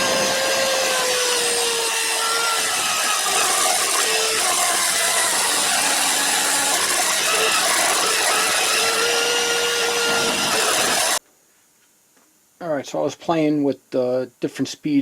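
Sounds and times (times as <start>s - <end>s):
pencil grinder grinding metal: 0.0s - 11.2s.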